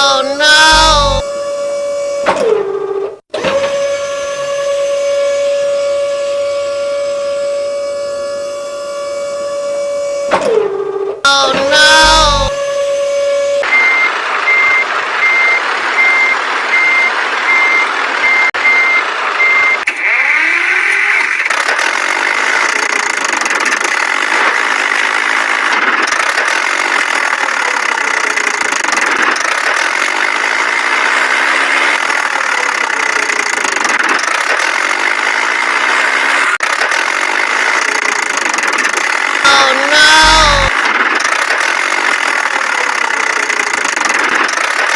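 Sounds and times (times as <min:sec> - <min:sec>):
vehicle engine running: 0:00.6 - 0:01.2, 0:26.5 - 0:39.5, 0:40.1 - 0:44.9
reversing alarm beeps: 0:13.6 - 0:19.9.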